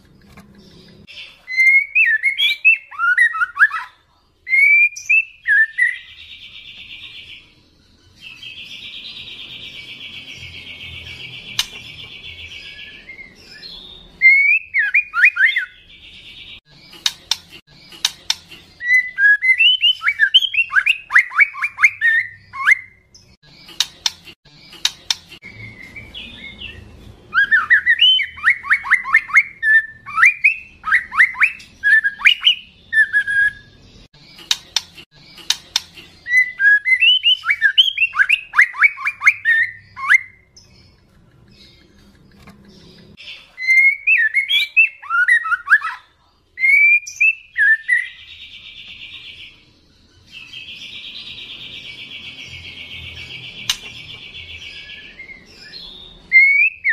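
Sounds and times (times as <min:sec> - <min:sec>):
bird sharp clicks: 0:11.5 - 0:11.8, 0:17.0 - 0:18.6, 0:23.7 - 0:25.4, 0:34.4 - 0:36.0, 0:53.6 - 0:54.2.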